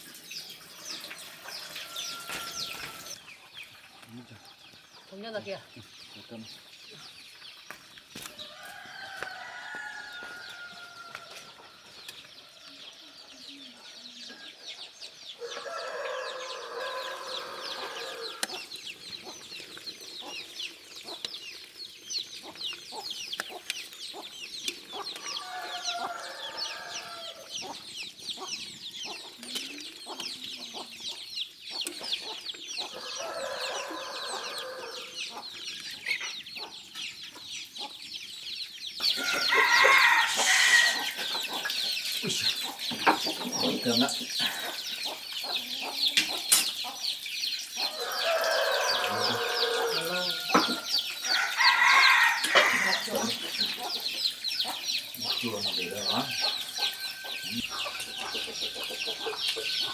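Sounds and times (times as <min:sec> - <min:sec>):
roosters crowing: 0:00.5 - 0:03.2, 0:08.2 - 0:13.5, 0:15.4 - 0:20.8, 0:24.8 - 0:27.9, 0:32.8 - 0:35.6, 0:39.0 - 0:59.9.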